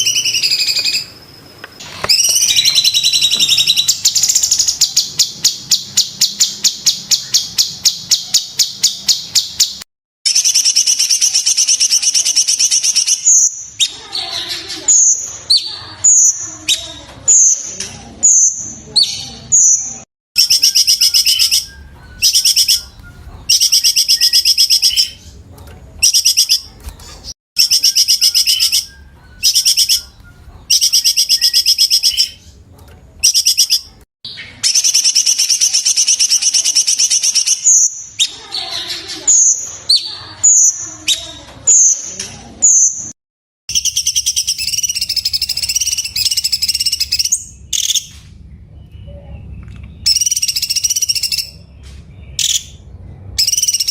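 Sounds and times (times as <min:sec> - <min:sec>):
bird trilling: 0:00.0 - 0:25.4, 0:26.0 - 0:32.6, 0:33.2 - 0:42.0, 0:43.7 - 0:48.1, 0:50.0 - 0:51.7, 0:53.4 - 0:53.9.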